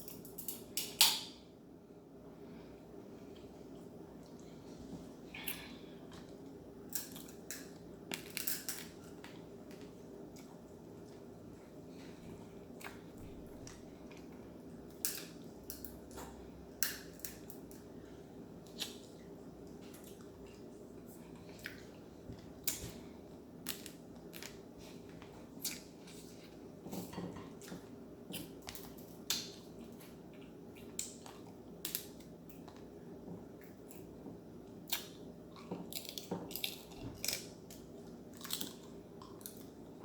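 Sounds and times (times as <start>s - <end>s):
steady low hum: 0.0s - 40.0s
shellfish shells cracking: 6.9s - 9.2s
chewing: 34.9s - 40.0s.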